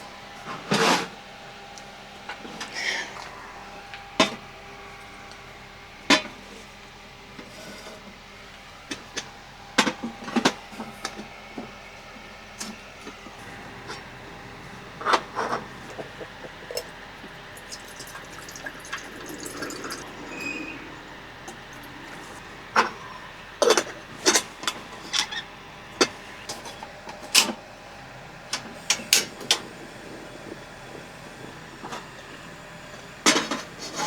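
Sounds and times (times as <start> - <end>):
faint steady hum: 1.1 - 34.0
dishes knocking and clinking: 15.1 - 23.0.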